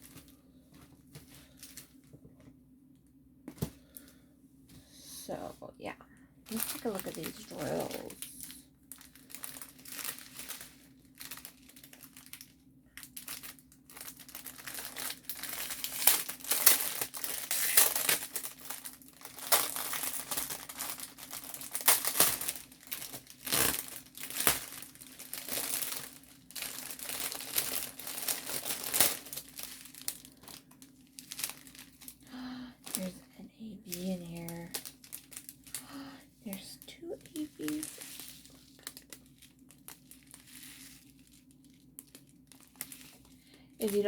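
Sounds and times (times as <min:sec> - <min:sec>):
plastic bags crinkling: 0:00.0 - 0:02.2, 0:06.5 - 0:44.0.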